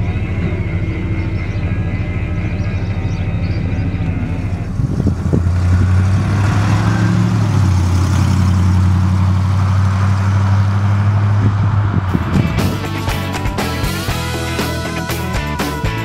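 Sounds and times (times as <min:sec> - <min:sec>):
car engine running steadily: 0:00.0 - 0:16.0.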